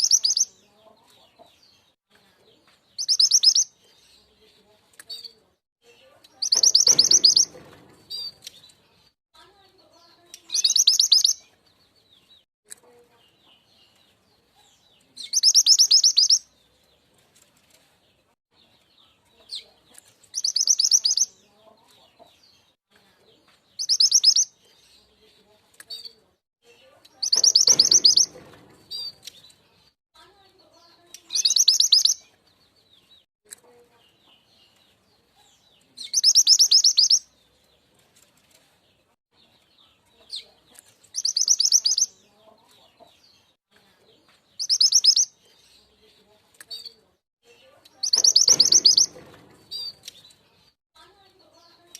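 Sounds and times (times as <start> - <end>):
single bird chirps: 3.0 - 3.7, 6.4 - 8.4, 10.5 - 11.4, 20.4 - 21.3, 27.2 - 29.4, 31.3 - 32.2, 41.2 - 42.1, 44.6 - 45.3, 48.0 - 50.2.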